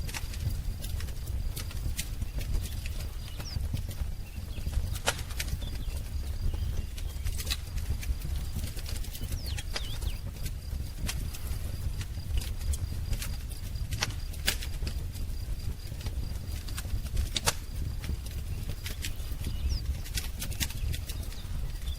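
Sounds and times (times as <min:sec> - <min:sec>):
wood fire crackling and popping: 0:00.0 - 0:21.9
faint bird chirps: 0:02.1 - 0:10.5, 0:18.4 - 0:21.9.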